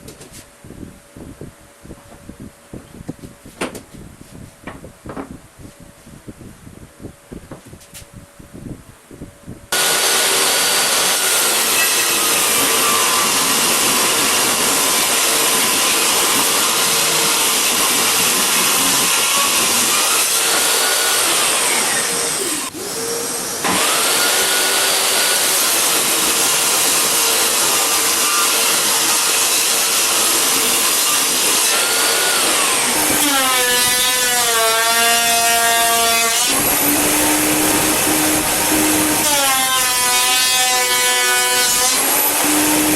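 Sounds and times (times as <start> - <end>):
power tool cutting wood: 9.7 - 42.9.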